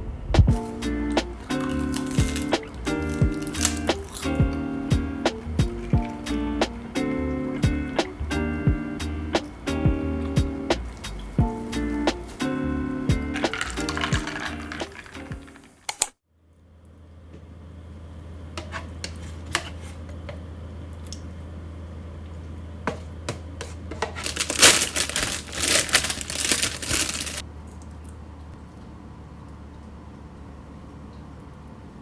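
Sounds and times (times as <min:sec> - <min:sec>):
steady low hum: 0:00.0 - 0:13.4
background music: 0:00.4 - 0:15.6
packaging rustling and crinkling: 0:00.6 - 0:04.4, 0:13.3 - 0:15.9, 0:24.1 - 0:27.4.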